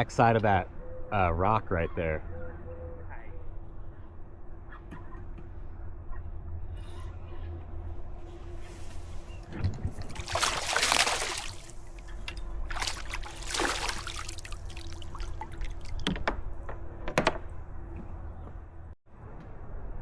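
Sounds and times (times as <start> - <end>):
water splashing: 9.8 - 16.1.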